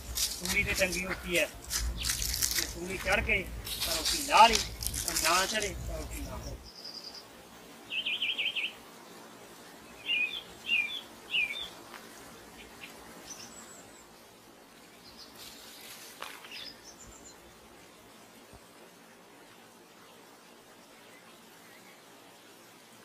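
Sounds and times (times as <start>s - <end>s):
birds chirping: 0.0s - 7.3s, 7.9s - 8.9s, 9.8s - 17.6s
thin high bird calls: 0.3s - 2.8s, 7.9s - 8.8s, 10.0s - 11.8s
bird trill: 10.0s - 11.8s.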